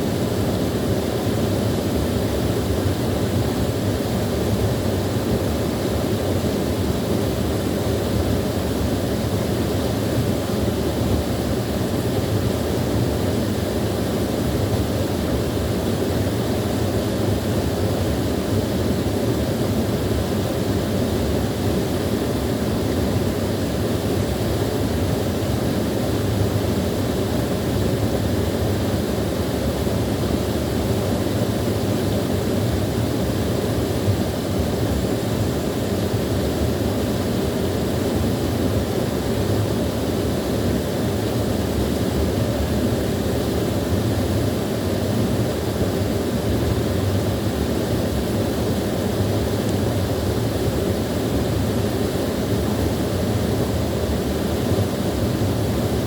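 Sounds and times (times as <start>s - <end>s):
small waterfall rushing: 0.0s - 56.0s.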